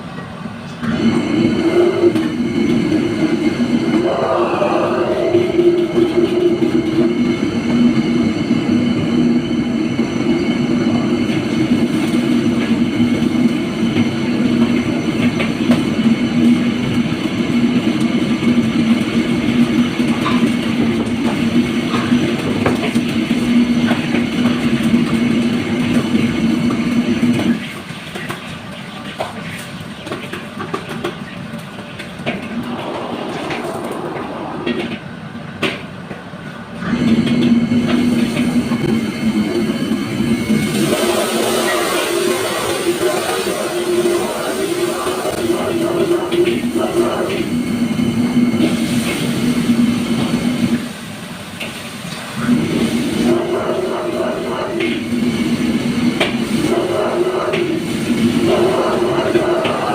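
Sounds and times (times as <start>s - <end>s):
loud mechanical roar: 0.8s - 7.0s, 32.2s - 35.3s.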